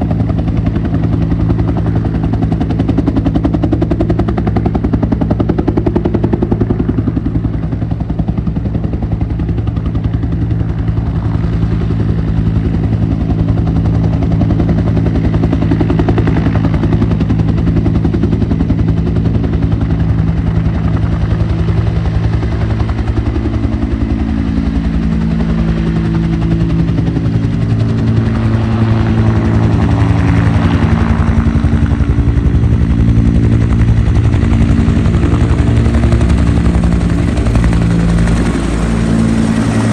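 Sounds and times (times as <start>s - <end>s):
helicopter rotor chop: 0.0s - 39.9s.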